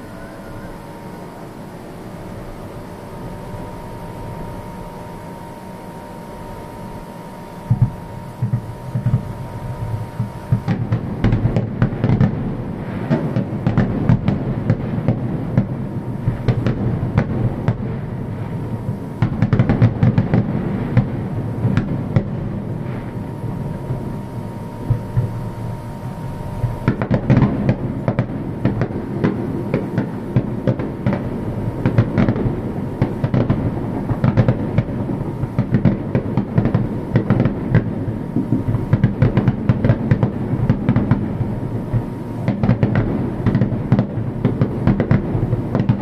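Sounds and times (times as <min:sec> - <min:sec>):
fireworks booming and crackling: 0:07.0 - 0:46.0.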